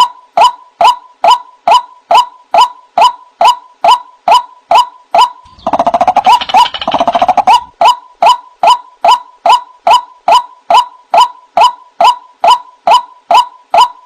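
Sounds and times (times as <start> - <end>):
bird short repeated calls: 4.3 - 7.8
bird chattering: 5.4 - 10.0.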